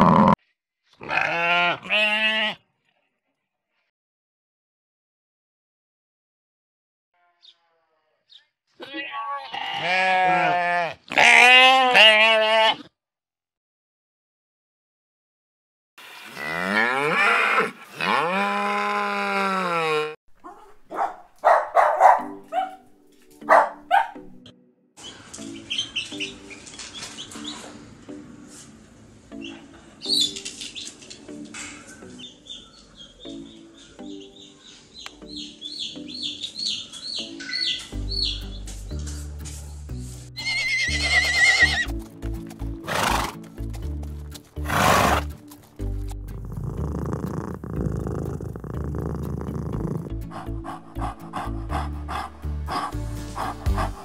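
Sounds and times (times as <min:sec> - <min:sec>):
soft background music: 0:20.9 - 0:54.0
zebra calling: 0:40.4 - 0:41.9, 0:44.6 - 0:45.4.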